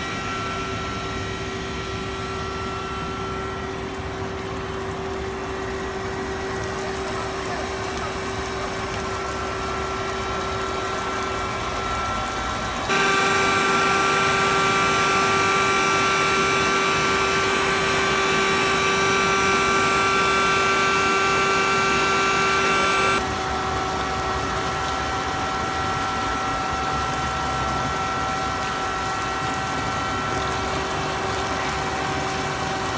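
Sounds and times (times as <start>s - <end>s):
concrete-cutting machinery whining: 6.9s - 23.2s.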